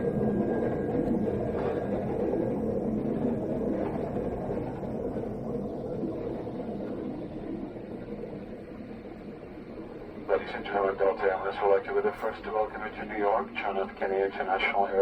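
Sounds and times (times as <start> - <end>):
aircraft cabin rumble: 0.0 - 8.6.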